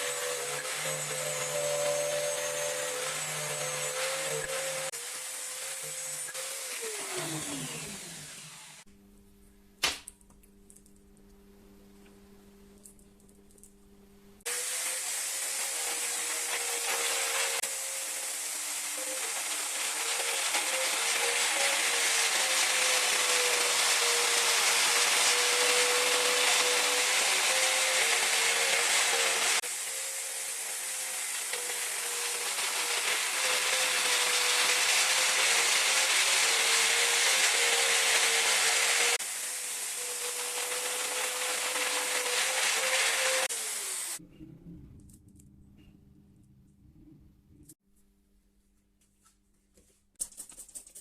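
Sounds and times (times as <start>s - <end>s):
power tool running with hiss: 0.0s - 8.9s, 14.5s - 44.2s.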